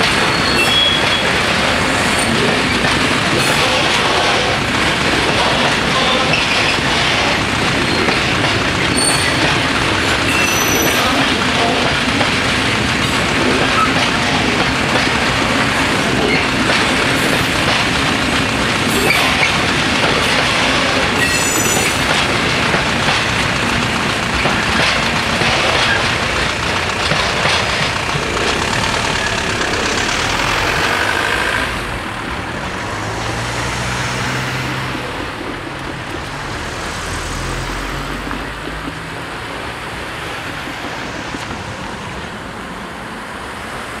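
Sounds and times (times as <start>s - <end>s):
high wheel squeal: 0.0s - 2.8s, 5.4s - 11.8s, 20.5s - 22.1s
freight train wagons rolling: 0.0s - 42.4s
car engines and tyres: 21.2s - 44.0s.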